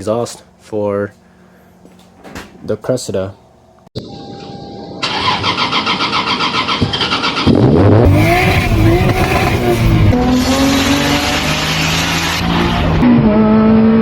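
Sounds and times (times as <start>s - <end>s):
car engine starter cranking: 5.0s - 10.0s
car engine revving: 5.0s - 14.0s.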